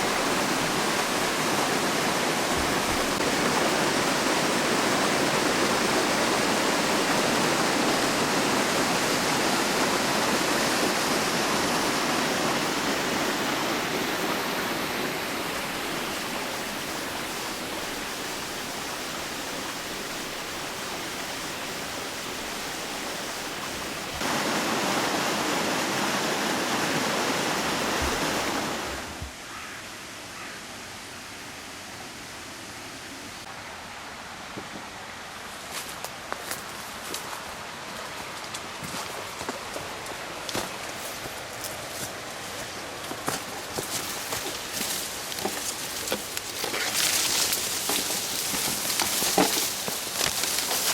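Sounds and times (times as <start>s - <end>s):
waterfall rushing: 0.0s - 29.5s.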